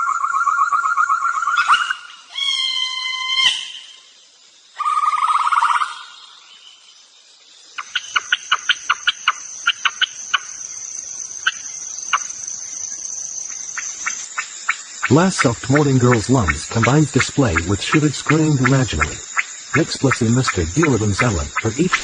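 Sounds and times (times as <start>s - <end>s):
animal call: 0.0s - 4.1s, 4.8s - 6.4s
high insect-like whine: 0.0s - 22.0s.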